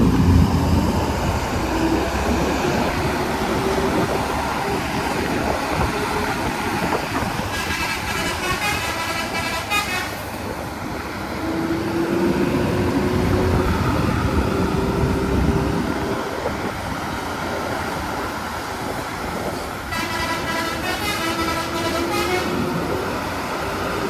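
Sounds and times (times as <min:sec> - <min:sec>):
bus engine and road noise: 0:00.0 - 0:24.0
vehicle horn: 0:07.5 - 0:10.2, 0:19.9 - 0:22.7.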